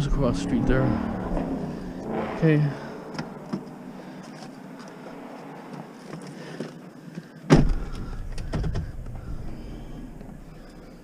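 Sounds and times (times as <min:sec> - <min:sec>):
low rumbling noise: 0:00.0 - 0:06.1, 0:07.6 - 0:11.0
loud thump: 0:07.5 - 0:09.2.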